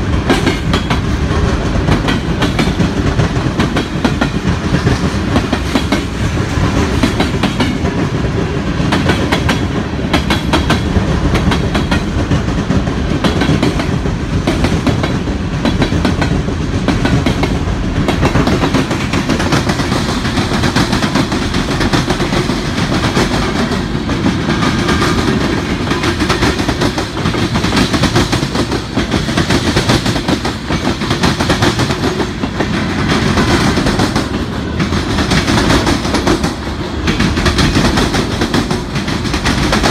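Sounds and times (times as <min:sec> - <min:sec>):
steel wheels rumbling on rail: 0:00.0 - 0:39.9.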